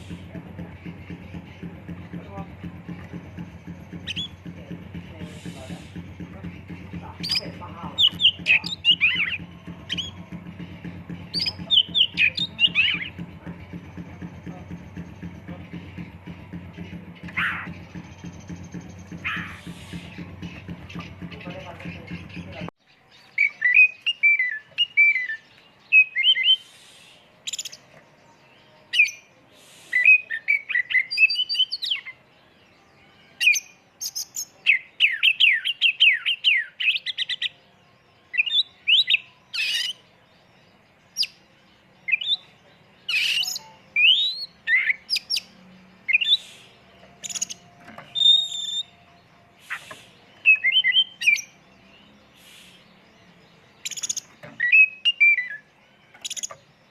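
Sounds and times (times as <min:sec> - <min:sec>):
bird singing chirping trills: 0:00.0 - 0:56.9.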